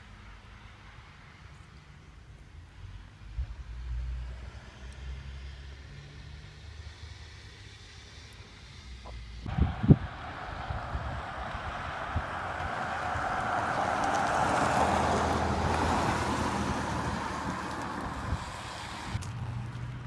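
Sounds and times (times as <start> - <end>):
vehicle driving past: 8.8 - 20.0.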